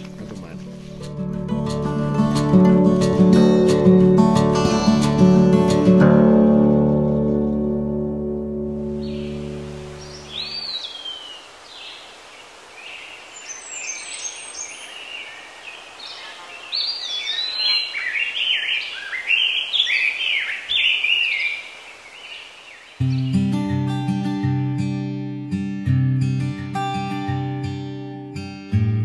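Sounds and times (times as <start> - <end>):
acoustic guitar music: 0.0 - 10.7, 23.0 - 29.0
songbirds singing: 8.4 - 24.3
faint steady hiss: 8.6 - 23.4.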